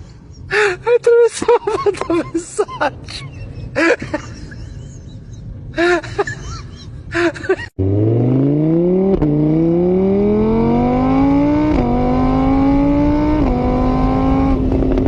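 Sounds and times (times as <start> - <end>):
car engine accelerating: 7.8 - 15.0.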